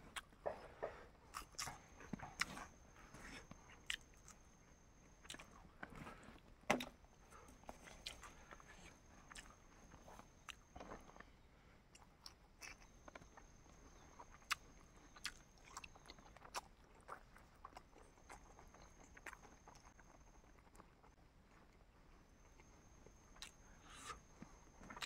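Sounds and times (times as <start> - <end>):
person chewing and biting food: 1.3 - 2.8, 14.2 - 20.9, 23.3 - 24.3.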